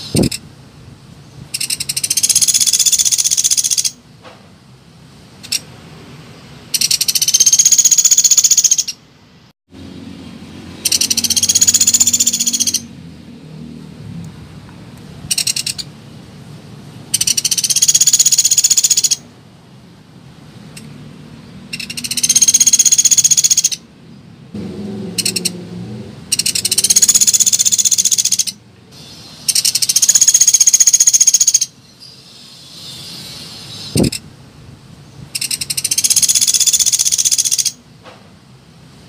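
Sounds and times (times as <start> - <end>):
woodpecker rattling trills: 1.5 - 4.0, 6.7 - 9.0, 10.8 - 12.9, 15.3 - 15.9, 17.1 - 19.2, 21.7 - 23.8, 25.1 - 25.6, 26.3 - 28.6, 29.4 - 31.8, 35.4 - 37.8.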